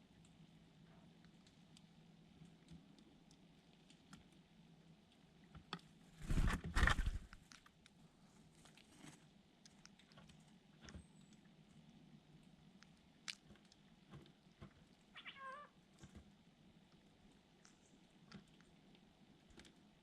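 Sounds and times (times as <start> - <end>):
rustling flurry: 6.2 - 7.4.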